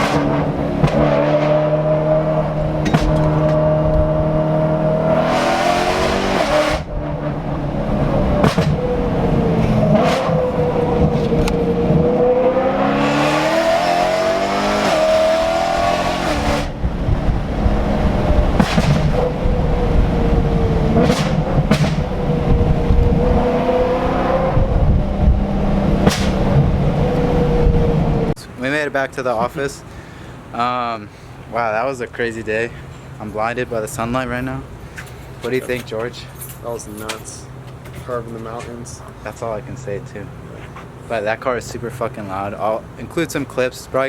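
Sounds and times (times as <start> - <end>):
sharp exhaust cracks: 0.0 - 28.2
loud car engine revving: 0.0 - 28.4.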